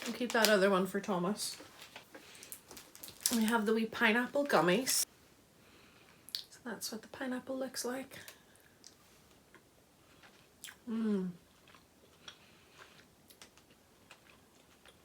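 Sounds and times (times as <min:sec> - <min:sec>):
person chewing gummy: 0:10.2 - 0:15.0
person humming mmm: 0:10.8 - 0:11.4.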